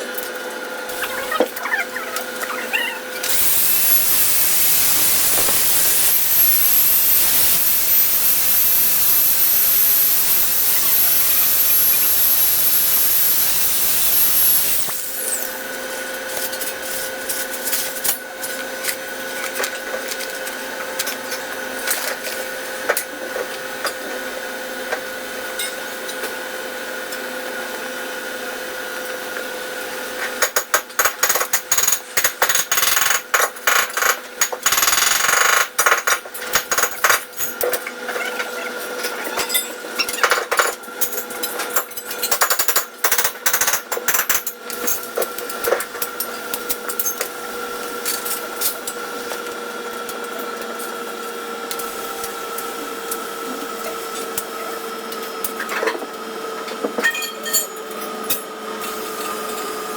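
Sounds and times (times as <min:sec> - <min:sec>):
steady machine hum: 0:00.9 - 0:16.6
hiss with high whistle: 0:03.4 - 0:15.6.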